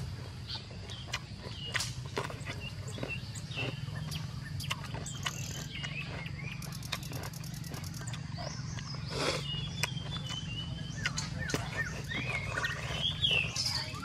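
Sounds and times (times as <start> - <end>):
rapid insect trill: 0.0 - 10.2
birds chirping: 0.0 - 14.0
crunchy vegetable chewing: 0.0 - 14.0
steady low hum: 0.0 - 14.0.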